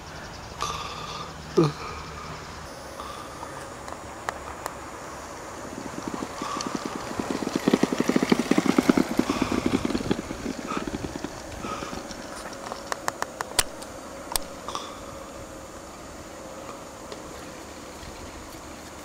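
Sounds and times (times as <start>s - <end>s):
go-kart wheels rattling: 3.4s - 19.0s.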